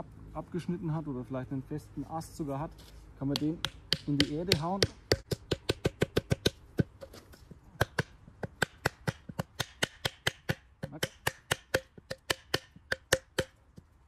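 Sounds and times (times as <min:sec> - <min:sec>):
hammer knocking wooden stake: 0:03.2 - 0:13.9.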